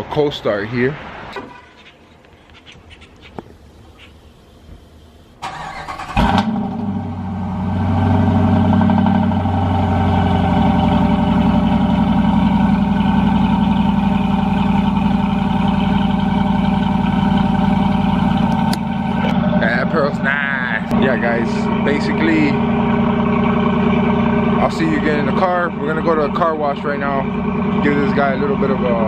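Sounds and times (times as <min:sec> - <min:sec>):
truck engine fast idle: 0:04.8 - 0:29.0
truck engine starter cranking: 0:05.3 - 0:06.9.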